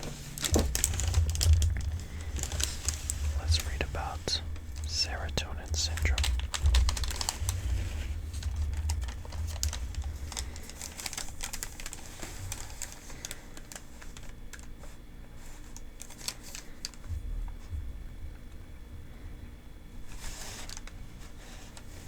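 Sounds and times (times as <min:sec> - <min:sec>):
paper crinkling: 0:00.0 - 0:17.1.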